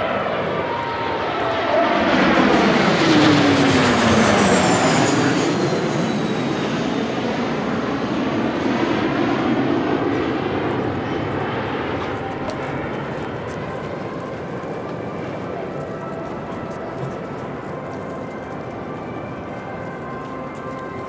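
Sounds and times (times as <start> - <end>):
jet flying past: 0.0 - 16.2.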